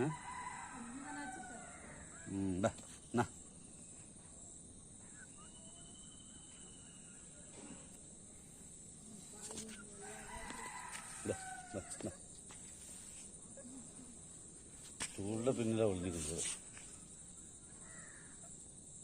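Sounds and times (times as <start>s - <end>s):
rooster crowing: 0.0s - 2.4s, 10.0s - 12.2s.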